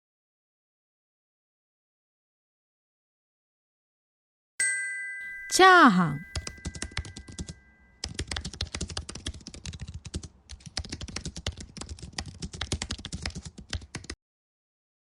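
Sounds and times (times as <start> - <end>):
computer keyboard typing: 6.3 - 14.2.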